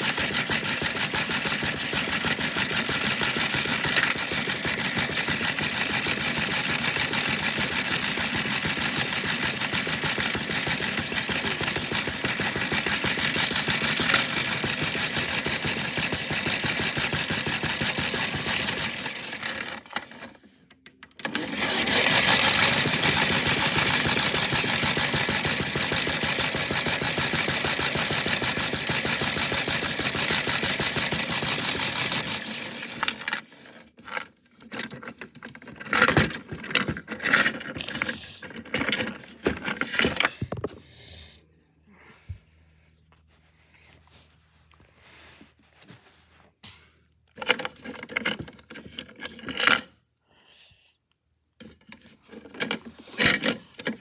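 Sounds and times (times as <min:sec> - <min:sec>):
rock rattling in washing machine: 0:00.0 - 0:20.2, 0:21.2 - 0:40.4.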